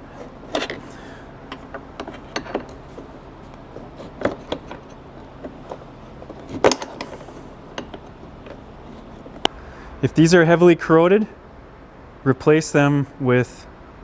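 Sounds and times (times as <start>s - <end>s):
hand tools clinking on metal: 0.0s - 9.5s.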